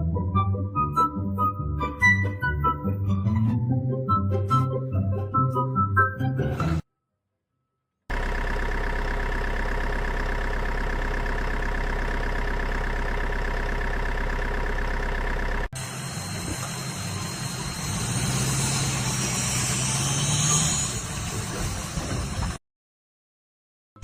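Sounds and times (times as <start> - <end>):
background music: 0.0 - 6.8
engine running steadily: 8.1 - 22.6
noisy engine with low hum: 8.1 - 22.6.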